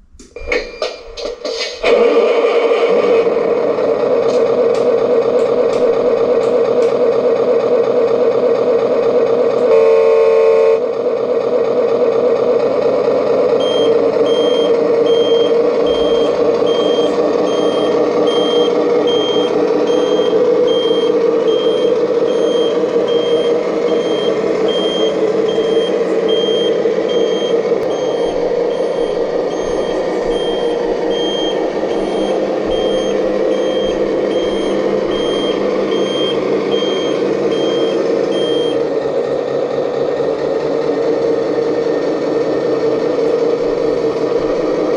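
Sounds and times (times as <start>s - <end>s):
backup alarm beeping: 0.3s - 1.2s, 13.6s - 38.8s
simulated engine hum: 1.8s - 44.9s.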